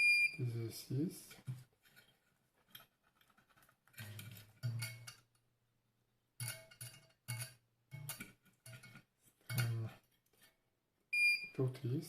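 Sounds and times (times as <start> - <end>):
multimeter beeps: 0.0 - 0.4, 11.2 - 11.6.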